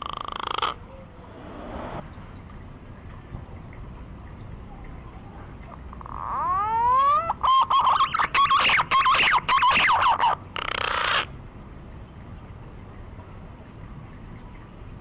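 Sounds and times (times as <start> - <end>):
whistled bird lure call: 6.1 - 11.2
warbling whistled notes: 6.5 - 10.4.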